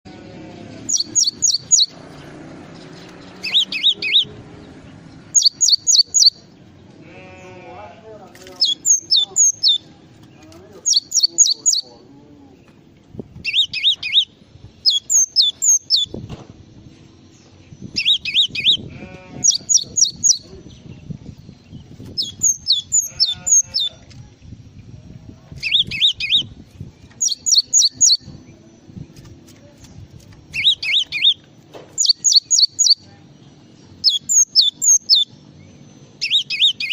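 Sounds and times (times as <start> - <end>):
songbird chirping: 0.1 - 36.9
songbird whistling: 0.9 - 2.0, 3.4 - 4.3, 5.4 - 6.4, 8.6 - 9.8, 10.9 - 11.9, 13.4 - 16.2, 17.9 - 18.8, 22.2 - 23.8, 25.6 - 26.5, 27.2 - 28.3, 30.5 - 31.4, 32.0 - 33.0, 34.0 - 35.4, 36.2 - 36.9.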